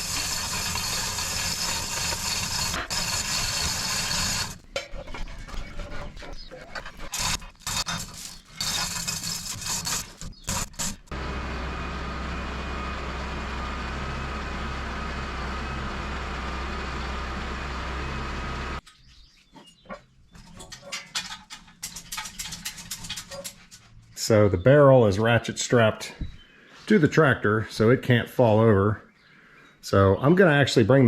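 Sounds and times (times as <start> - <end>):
metal scraping and clicking: 0.0 - 11.1, 19.9 - 23.9
machine running with low drone: 7.1 - 18.8.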